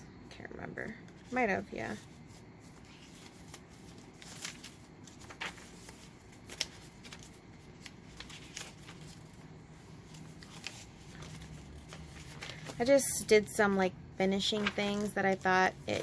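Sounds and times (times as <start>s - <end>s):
paper pages rustling: 1.1s - 16.0s.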